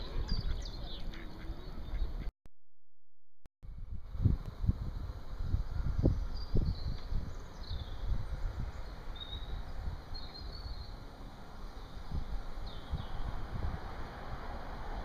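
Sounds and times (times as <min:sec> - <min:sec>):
birds chirping: 0:00.0 - 0:02.3, 0:05.7 - 0:13.4.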